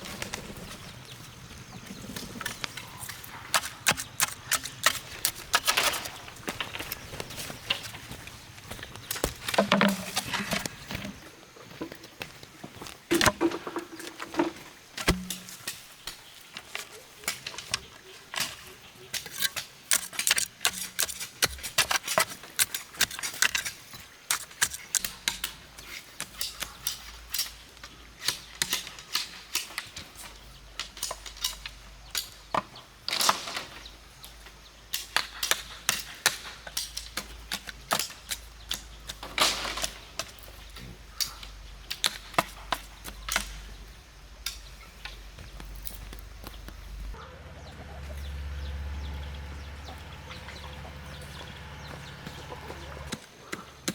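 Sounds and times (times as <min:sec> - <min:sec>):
chickens clucking: 0:46.5 - 0:53.9.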